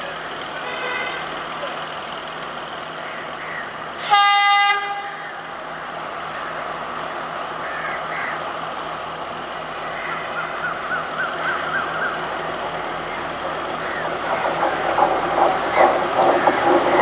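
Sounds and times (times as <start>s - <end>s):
train running noise: 0.0s - 17.0s
train horn blast: 0.6s - 1.3s, 4.0s - 5.4s.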